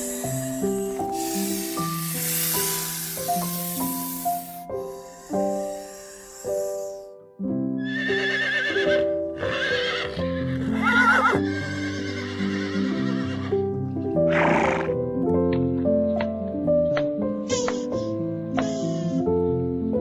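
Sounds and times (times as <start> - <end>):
short breathy noise: 0.0 - 7.1
background music: 0.0 - 20.0
horse whinnying: 7.8 - 13.5.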